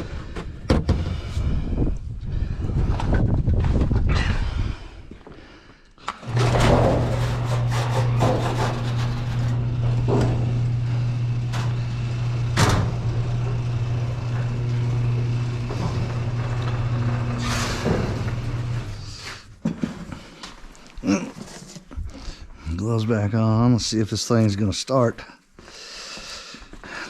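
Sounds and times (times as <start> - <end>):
garage door opener motor hum: 6.2 - 19.5
garage door rattling and clanking: 6.2 - 19.9.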